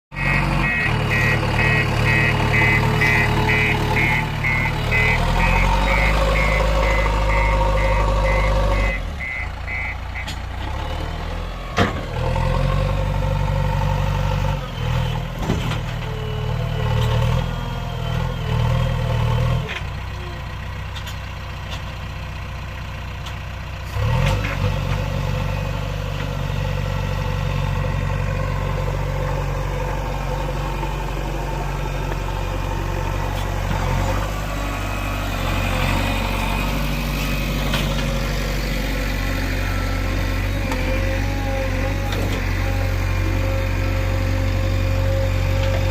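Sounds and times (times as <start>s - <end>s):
reversing alarm beeping: 0.1s - 10.4s
diesel engine working: 0.1s - 45.9s.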